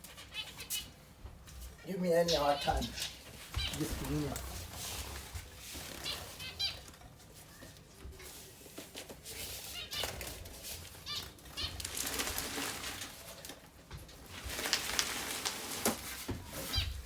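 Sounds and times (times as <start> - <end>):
finch calls: 0.0 - 1.0, 1.8 - 4.5, 5.9 - 6.9, 11.0 - 12.1, 16.6 - 17.0.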